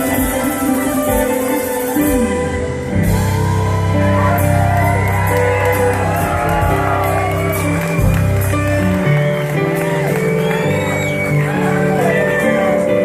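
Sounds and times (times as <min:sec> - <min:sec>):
live band playing: 0:00.0 - 0:13.0
audience shouting and whooping: 0:03.0 - 0:13.0.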